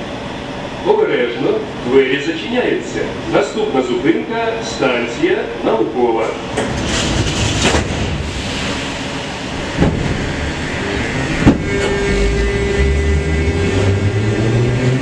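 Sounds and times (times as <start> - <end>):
traction motors humming: 6.2 - 15.0
sharp knocks: 9.8 - 10.3, 11.4 - 12.0.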